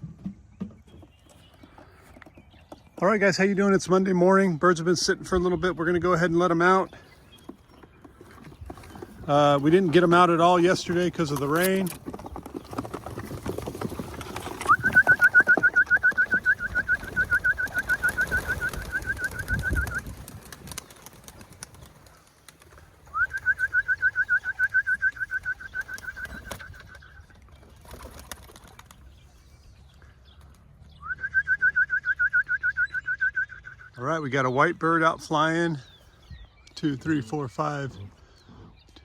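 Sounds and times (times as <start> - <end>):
pigeons cooing: 8.2 - 28.9.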